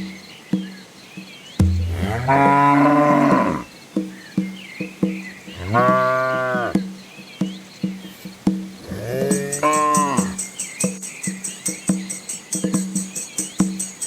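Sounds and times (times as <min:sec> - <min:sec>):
cattle mooing: 0:01.8 - 0:03.7, 0:05.6 - 0:06.8, 0:08.8 - 0:10.4.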